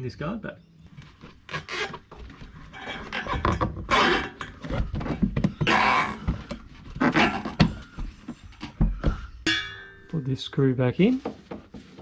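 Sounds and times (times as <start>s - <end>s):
plastic liner scraping: 1.1s - 7.8s.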